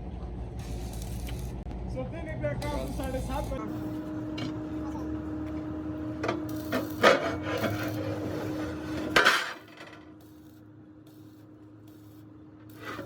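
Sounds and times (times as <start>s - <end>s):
machine hum: 0.0s - 13.0s
sharp knocks and scraping: 6.2s - 10.1s.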